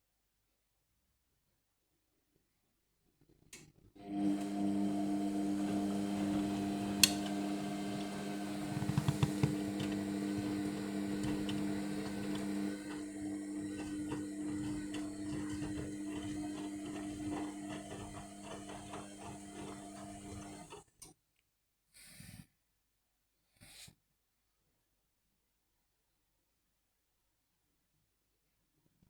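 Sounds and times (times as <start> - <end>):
washing machine motor humming: 4.0 - 20.9.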